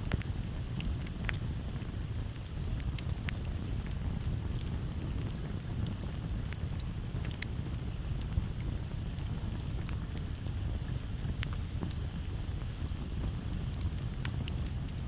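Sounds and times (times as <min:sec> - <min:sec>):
campfire crackling and popping: 0:00.0 - 0:15.0
low rumble of flame: 0:00.0 - 0:15.0.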